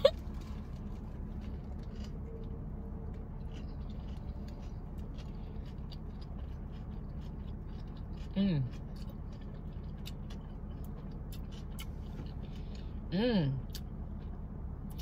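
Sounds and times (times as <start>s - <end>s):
steady low hum: 0.0s - 15.0s
faint chewing and mouth clicks: 0.1s - 13.0s, 13.6s - 15.0s.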